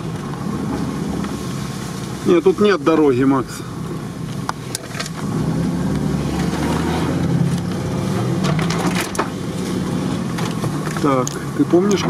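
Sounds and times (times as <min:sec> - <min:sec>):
off-road vehicle engine running: 0:00.0 - 0:12.0
knocks and rattles: 0:08.2 - 0:09.4.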